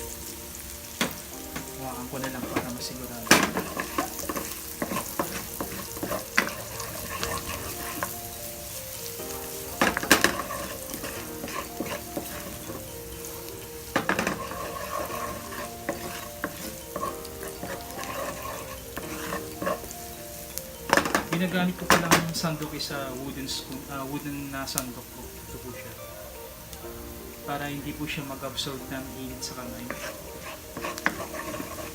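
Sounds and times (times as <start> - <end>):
garlic sizzling in oil: 0.0 - 31.9
wooden spoon knocking pan: 1.0 - 8.3, 9.2 - 20.0, 20.8 - 22.8, 29.6 - 31.9.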